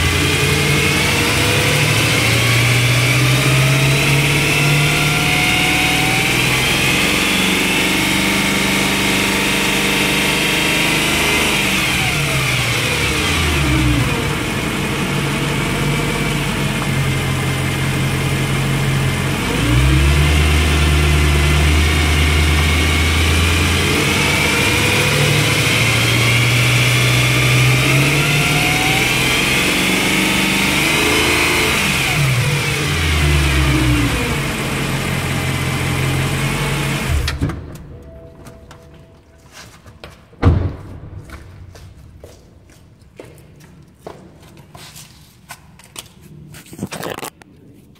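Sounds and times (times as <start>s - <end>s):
car engine revving: 0.0s - 37.4s.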